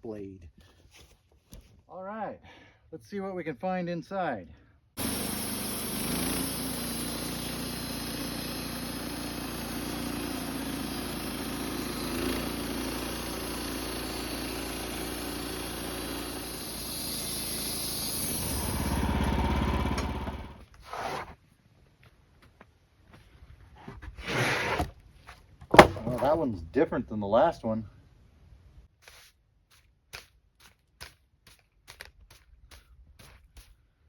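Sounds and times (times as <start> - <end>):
band sawmill sawing a log: 5.0 - 21.1.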